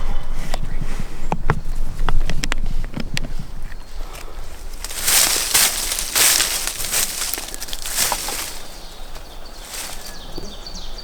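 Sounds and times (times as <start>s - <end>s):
footsteps crunching dry leaves: 3.9s - 10.4s.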